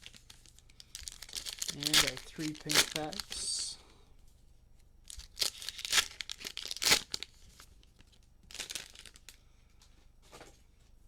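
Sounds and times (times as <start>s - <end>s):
wrappers tearing and crinkling: 0.0s - 3.8s, 5.0s - 9.4s.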